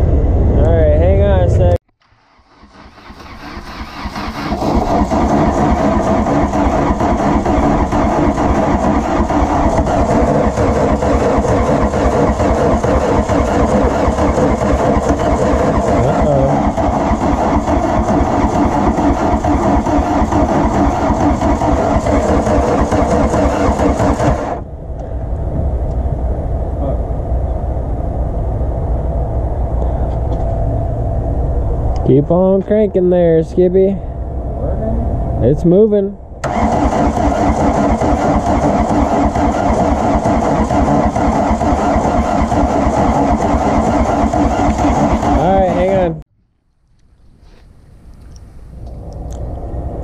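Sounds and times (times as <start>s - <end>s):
diesel engine cranking: 2.0s - 26.1s, 35.2s - 50.0s.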